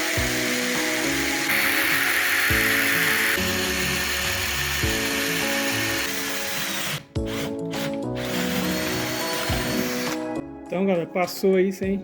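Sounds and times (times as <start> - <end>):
cordless drill boring into wood: 0.0 - 10.3
background music with bass line: 7.1 - 12.0.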